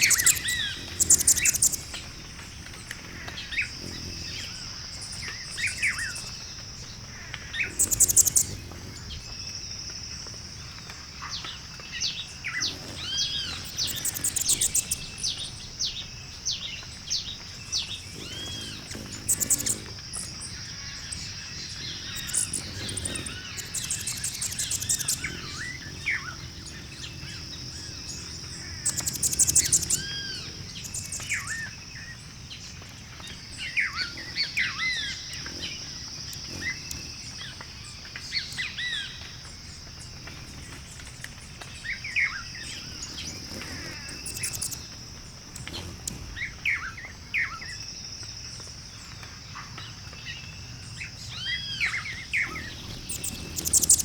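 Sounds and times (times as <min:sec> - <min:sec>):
rattling bird trills: 0:00.0 - 0:06.3, 0:17.7 - 0:31.7, 0:42.6 - 0:46.9, 0:52.1 - 0:54.0
birds chirping and whistling: 0:00.0 - 0:09.3, 0:11.6 - 0:47.8, 0:50.4 - 0:54.0
steady high hiss: 0:00.0 - 0:49.0, 0:50.6 - 0:54.0.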